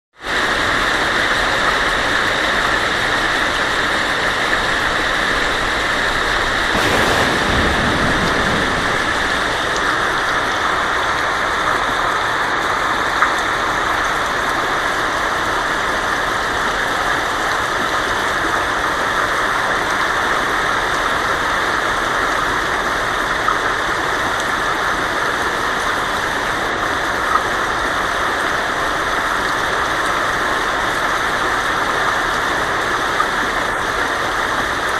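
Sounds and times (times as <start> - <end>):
rain on a tin roof: 0.2 - 34.9
thunder rumble: 6.3 - 11.4.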